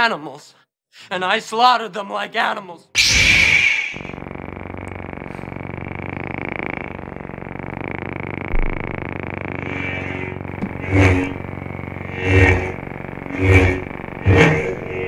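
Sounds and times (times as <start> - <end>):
low electric buzzing drone: 3.0 - 15.0.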